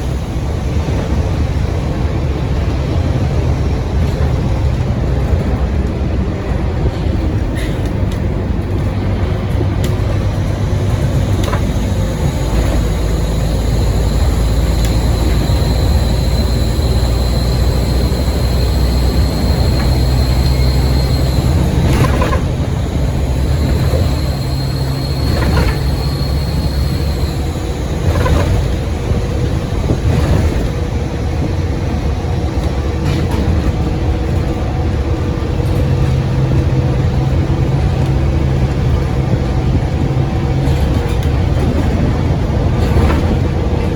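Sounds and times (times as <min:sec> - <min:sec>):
bus engine running: 0:00.0 - 0:43.9
high turbo whistle: 0:10.3 - 0:30.6.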